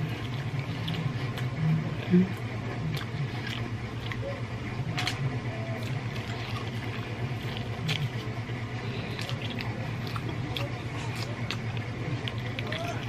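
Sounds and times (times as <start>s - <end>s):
pulling meat off bone: 0.0s - 4.3s, 4.9s - 13.0s
mouth smacks and chewing: 0.0s - 13.0s
steady low hum: 0.0s - 13.0s.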